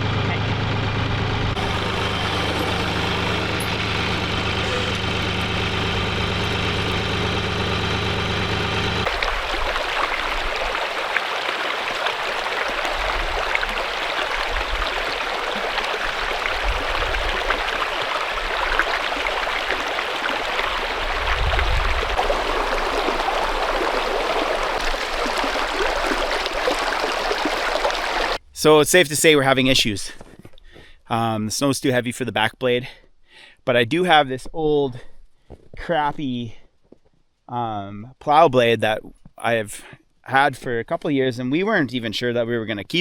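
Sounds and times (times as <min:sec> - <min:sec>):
engine idling: 0:00.0 - 0:28.4
low rumbles: 0:00.0 - 0:28.8.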